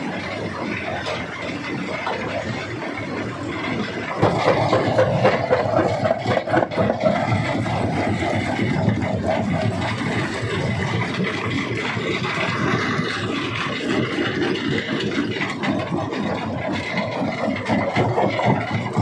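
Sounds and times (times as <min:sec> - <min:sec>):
rock crusher running: 0:00.0 - 0:19.0.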